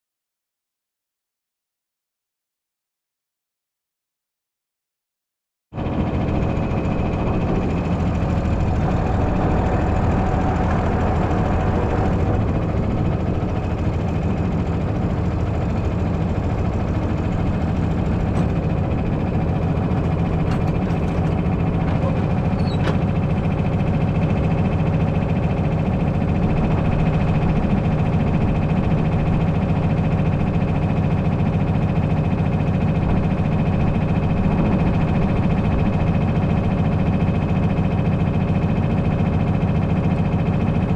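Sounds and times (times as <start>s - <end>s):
engine running steadily: 5.8s - 40.9s
faint high squeaks: 22.0s - 23.0s.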